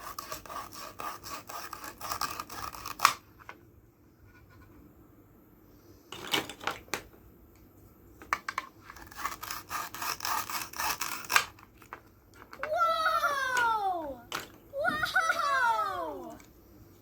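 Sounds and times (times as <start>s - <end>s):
plastic toy knife cutting: 0.0s - 3.2s, 8.9s - 11.7s.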